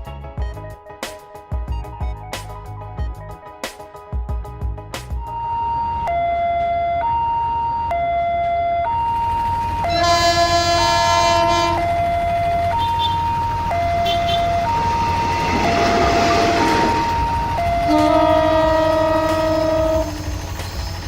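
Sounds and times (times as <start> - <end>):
two-tone siren: 5.2 - 20.3
train horn: 9.8 - 12.0, 12.7 - 13.3, 14.0 - 14.6, 17.8 - 20.3.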